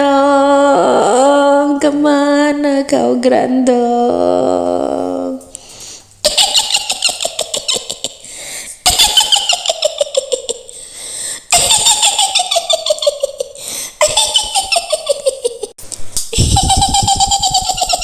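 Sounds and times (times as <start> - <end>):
woman's shrill cackling laugh: 6.2 - 8.2, 8.8 - 10.7, 11.5 - 18.0.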